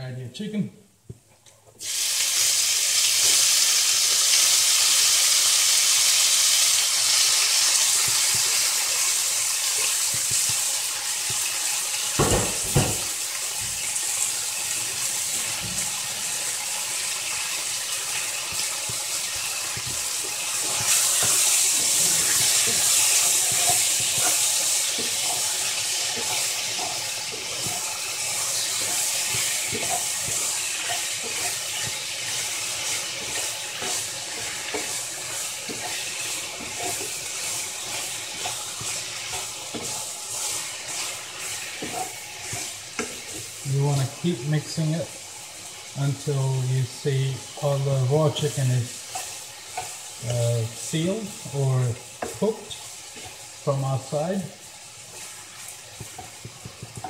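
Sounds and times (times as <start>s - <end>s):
chicken sizzling in hot oil: 1.8s - 57.0s
knocks on pan: 12.2s - 13.2s.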